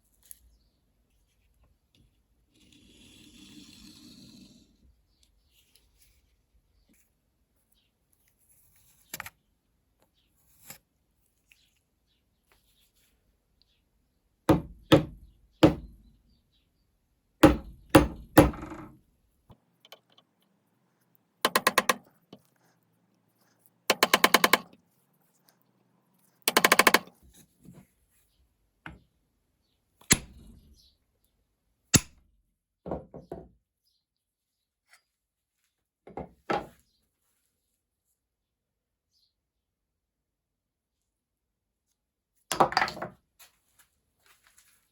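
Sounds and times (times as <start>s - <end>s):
sharp knocks: 17.4s - 19.0s, 21.5s - 22.0s, 23.9s - 24.7s, 26.5s - 27.1s
rattling bursts of rapid clicks: 23.9s - 24.7s, 26.5s - 27.1s.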